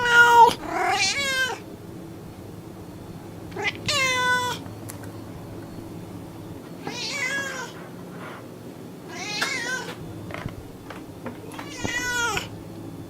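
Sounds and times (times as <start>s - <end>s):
cat meowing: 0.0s - 1.6s, 3.6s - 4.6s, 6.8s - 7.8s, 9.1s - 10.0s, 11.4s - 12.5s.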